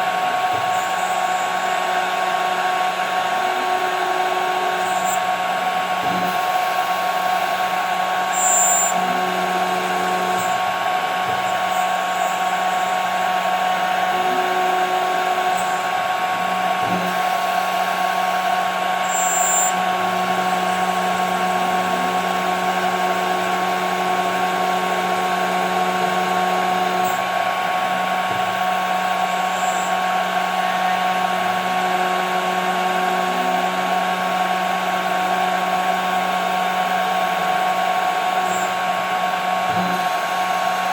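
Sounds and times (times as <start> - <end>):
router spindle whine: 0.0 - 40.9
high-pitched squeaks: 8.3 - 9.0, 19.1 - 19.7.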